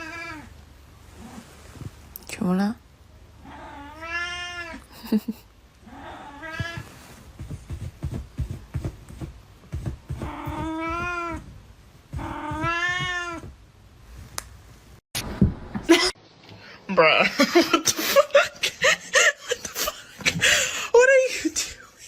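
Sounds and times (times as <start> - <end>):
cat meowing: 0.0 - 0.5, 3.4 - 4.8, 5.9 - 6.9, 10.2 - 11.4, 12.2 - 13.5.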